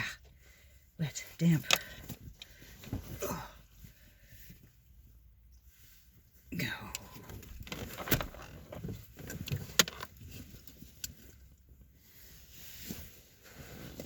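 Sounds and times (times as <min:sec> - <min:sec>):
clothing and gear rustling: 0:00.4 - 0:14.0.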